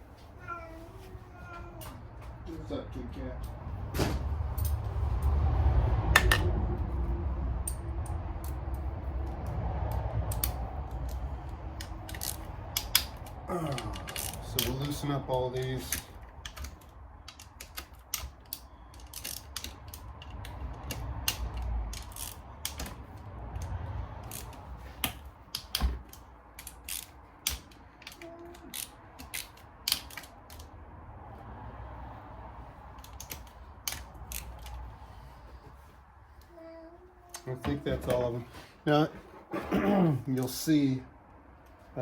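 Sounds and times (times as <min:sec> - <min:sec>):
hand ratchet clicking: 0:10.2 - 0:15.1, 0:15.9 - 0:22.9, 0:23.5 - 0:30.7.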